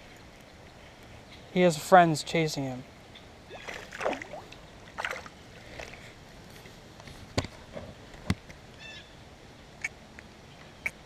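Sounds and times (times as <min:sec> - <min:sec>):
water splashing in creek: 0:03.4 - 0:06.1.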